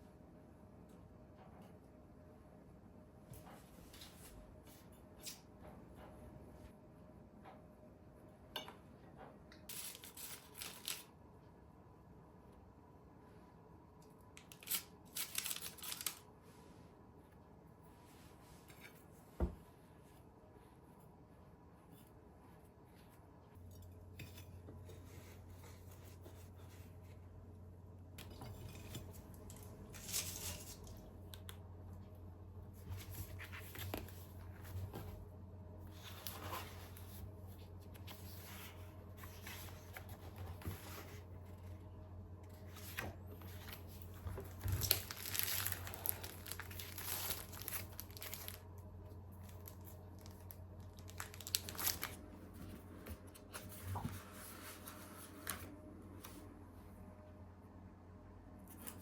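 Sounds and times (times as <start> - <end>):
low steady hum: 0.0 - 59.0
paper packaging rustling and tearing: 9.7 - 11.1, 14.4 - 16.3, 42.7 - 55.7.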